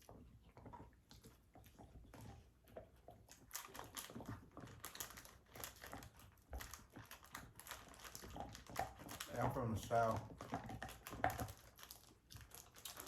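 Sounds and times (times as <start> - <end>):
food wrappers crinkling: 3.3 - 13.0.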